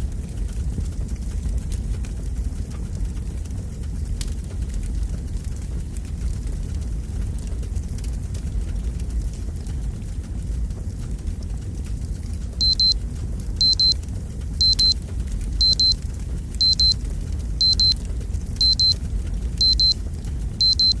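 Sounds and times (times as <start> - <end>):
fire crackling: 0.0 - 21.0
alarm clock beeping: 12.6 - 13.0, 13.6 - 14.0, 14.6 - 15.0, 15.6 - 16.0, 16.6 - 17.0, 17.6 - 18.0, 18.6 - 19.0, 19.6 - 20.0, 20.6 - 21.0.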